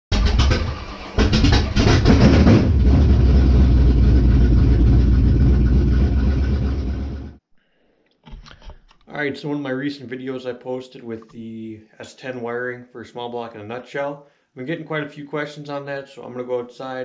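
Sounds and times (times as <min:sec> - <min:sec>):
car engine revving: 0:00.1 - 0:07.4.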